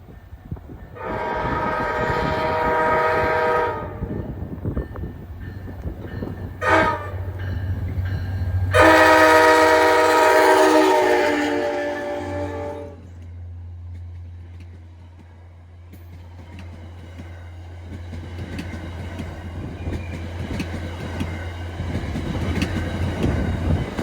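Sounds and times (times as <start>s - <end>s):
train rumbling: 0.0s - 24.0s
train air horn blasts: 1.0s - 4.4s, 6.6s - 7.7s, 8.6s - 13.2s.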